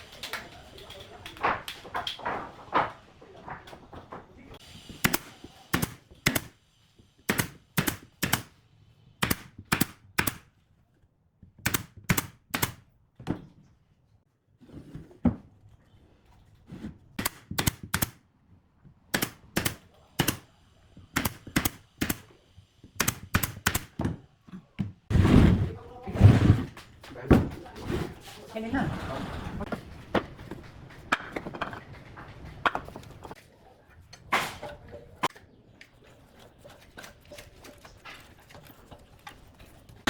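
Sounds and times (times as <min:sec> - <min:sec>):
nails hammered into wood: 0:05.0 - 0:06.6, 0:07.3 - 0:08.6, 0:09.2 - 0:10.5, 0:11.6 - 0:12.9, 0:17.2 - 0:18.2, 0:19.1 - 0:20.5, 0:21.1 - 0:22.3, 0:23.0 - 0:24.2.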